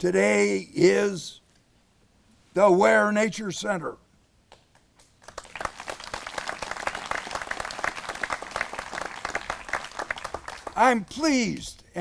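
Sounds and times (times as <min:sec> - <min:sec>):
audience clapping: 0:04.6 - 0:11.3.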